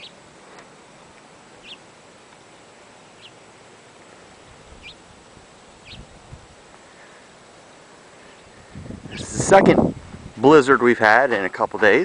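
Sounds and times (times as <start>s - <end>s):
small bird chirping: 0.0s - 0.2s, 1.6s - 1.9s, 3.0s - 3.4s, 4.6s - 5.0s, 5.6s - 6.1s, 7.6s - 9.4s
steady background hiss: 0.0s - 12.0s.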